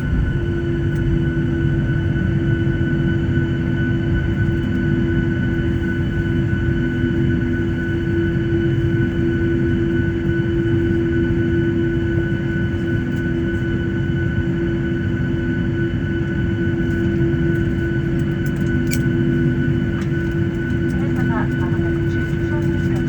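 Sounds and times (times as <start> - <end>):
jet cabin rumble: 0.0 - 23.0
jet engine whine: 0.0 - 23.0.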